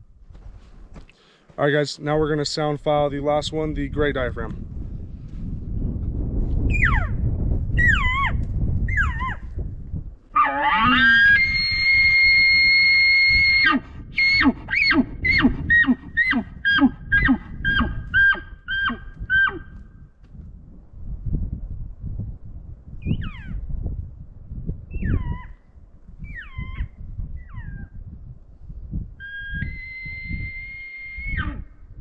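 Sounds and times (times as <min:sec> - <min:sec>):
wind rumble on microphone: 0:00.0 - 0:01.1, 0:02.2 - 0:32.0
elk call bugling: 0:10.4 - 0:19.8, 0:29.2 - 0:31.7.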